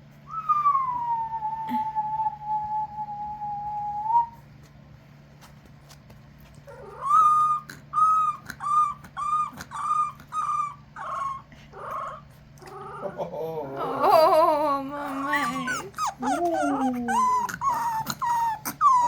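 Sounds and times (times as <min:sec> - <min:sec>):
puppies howling whines: 0:06.7 - 0:19.0.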